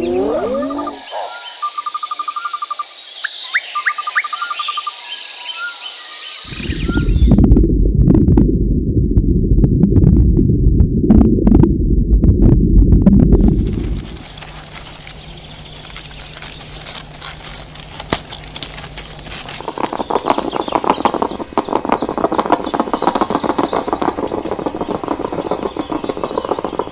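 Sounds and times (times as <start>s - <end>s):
birds chirping: 0.0s - 7.4s, 13.4s - 26.9s
low rumble: 6.5s - 22.2s.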